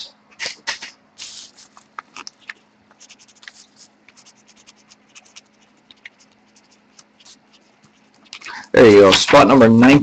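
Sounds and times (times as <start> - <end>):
pen scratching on paper: 1.2 - 8.3.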